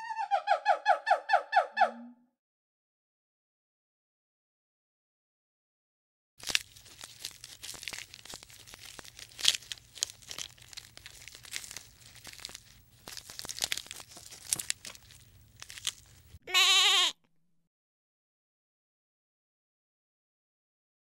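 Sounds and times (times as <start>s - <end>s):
leaves and twigs rustling: 6.4s - 16.4s
goat bleating: 16.4s - 17.2s.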